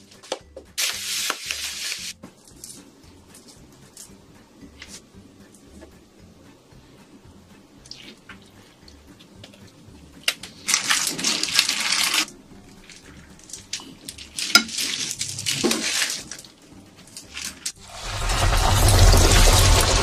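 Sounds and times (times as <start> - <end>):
shrimp sizzling in hot oil: 0.8 - 2.2, 17.8 - 20.0
mixing and crumb rustling: 10.5 - 20.0.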